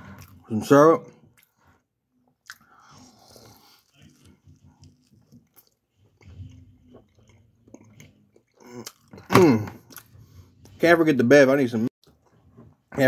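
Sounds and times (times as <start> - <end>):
faint close-up chewing: 1.2 - 10.2.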